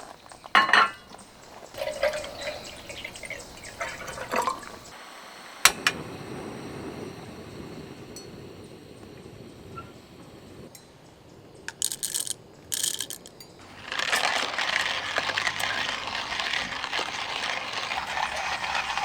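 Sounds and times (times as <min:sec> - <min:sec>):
liquid pouring and splashing: 0:01.5 - 0:04.9, 0:11.7 - 0:19.0.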